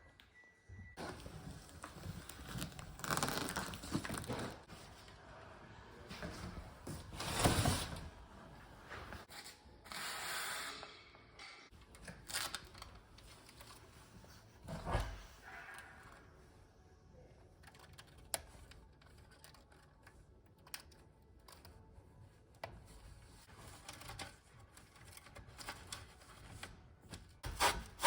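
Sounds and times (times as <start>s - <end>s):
packaging tearing and rustling: 2.2s - 4.7s.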